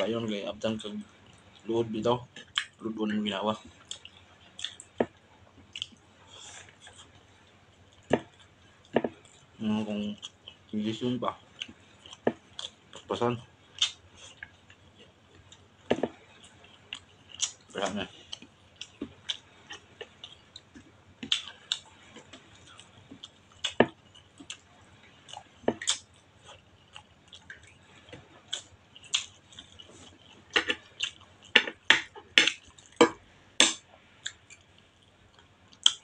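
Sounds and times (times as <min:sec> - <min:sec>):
wet chewing: 0:13.7 - 0:33.0.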